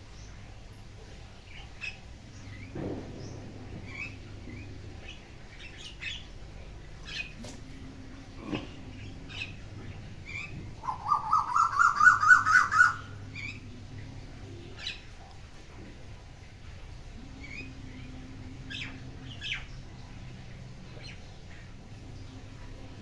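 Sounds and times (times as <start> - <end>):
bird chirping: 8.9 - 13.7
bird rapid rising trill: 10.3 - 13.6.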